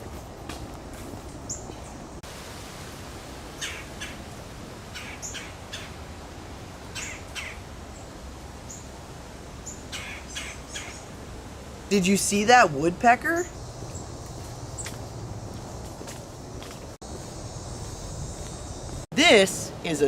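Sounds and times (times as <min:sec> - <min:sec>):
steady background hiss: 0:00.0 - 0:20.0
birds chirping: 0:01.2 - 0:02.2, 0:04.9 - 0:06.0, 0:06.9 - 0:08.9, 0:09.6 - 0:11.2, 0:11.9 - 0:19.4
harsh bird calls: 0:03.6 - 0:04.2, 0:04.9 - 0:06.0, 0:06.9 - 0:08.1, 0:09.6 - 0:11.1.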